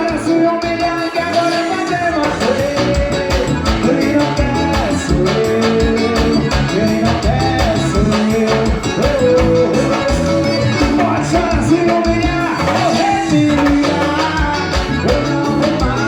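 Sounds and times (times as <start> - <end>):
band music with bass beat: 0.0 - 16.0.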